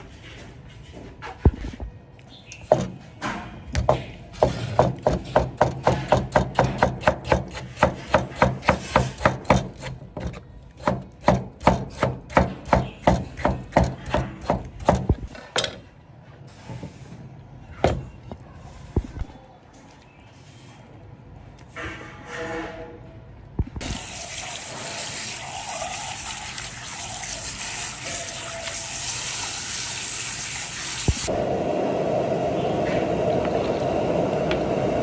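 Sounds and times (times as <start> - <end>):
knife chopping on wooden board: 3.9 - 15.2.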